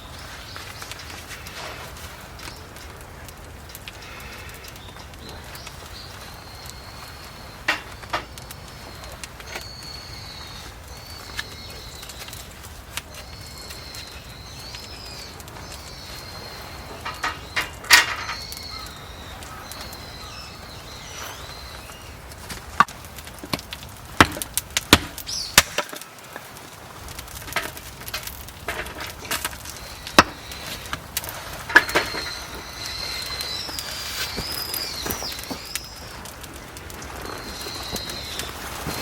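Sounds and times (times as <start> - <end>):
bird calling: 4.0 - 22.3, 25.1 - 25.9, 29.7 - 39.0
firewood being chopped: 21.9 - 39.0.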